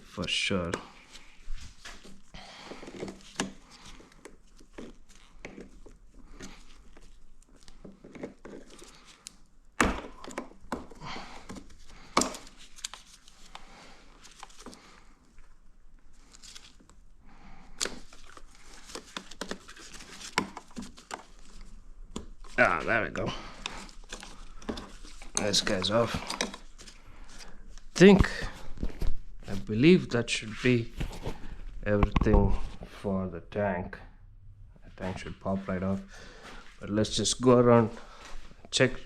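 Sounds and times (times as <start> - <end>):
hands clicking and rustling: 2.8 - 15.5, 17.8 - 22.6.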